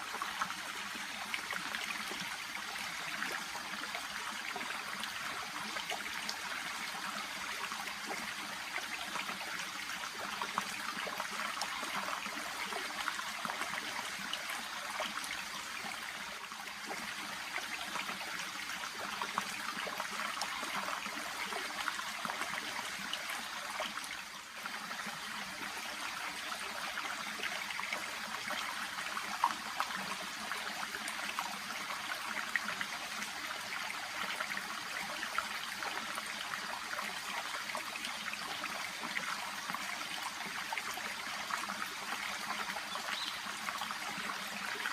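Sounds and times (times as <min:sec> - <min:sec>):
babbling stream: 0:00.0 - 0:44.9
water trickling and bubbling: 0:00.0 - 0:44.9.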